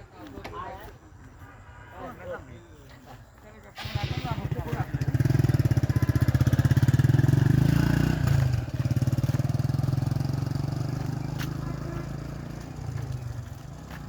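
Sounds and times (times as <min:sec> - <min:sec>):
small engine running: 0:03.8 - 0:14.0.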